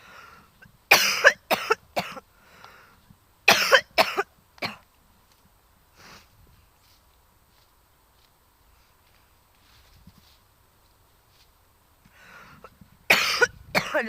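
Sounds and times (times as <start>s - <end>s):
person coughing hard: 0.9s - 2.2s, 3.5s - 4.8s, 13.1s - 14.0s.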